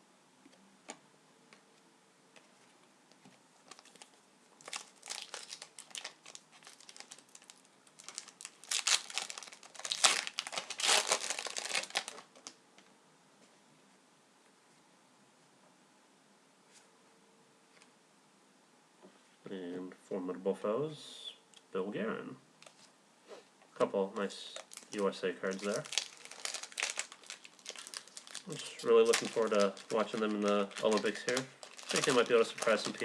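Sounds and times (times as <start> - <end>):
card pack wrapper crinkling: 3.7 - 12.6, 24.2 - 33.0.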